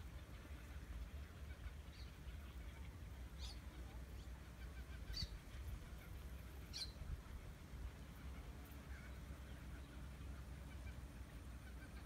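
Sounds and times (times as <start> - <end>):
low steady rumble: 0.0 - 12.0
short high bird calls: 1.5 - 7.1.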